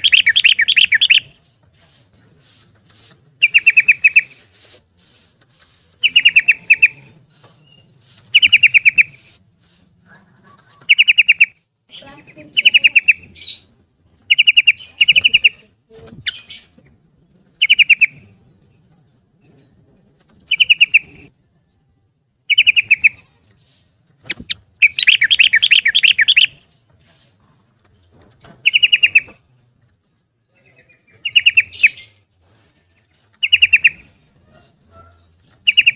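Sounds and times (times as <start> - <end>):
bird singing fast trilled phrases: 0.0 - 1.3, 3.4 - 4.4, 6.0 - 7.0, 7.6 - 9.3, 10.9 - 13.7, 14.3 - 16.8, 17.6 - 18.2, 20.4 - 21.2, 22.5 - 23.2, 24.3 - 26.6, 28.6 - 29.3, 31.0 - 32.2, 33.4 - 34.1, 35.0 - 35.9.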